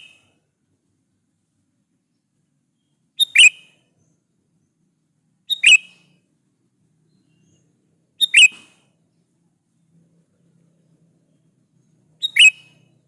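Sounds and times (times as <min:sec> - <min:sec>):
bulbul calling: 0:02.8 - 0:04.2, 0:05.5 - 0:06.2, 0:07.1 - 0:08.9, 0:11.3 - 0:13.0.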